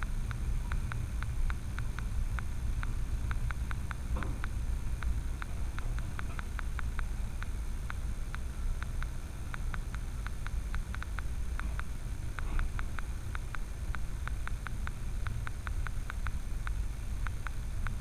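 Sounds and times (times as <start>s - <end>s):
sharp ticks: 0.0s - 18.0s.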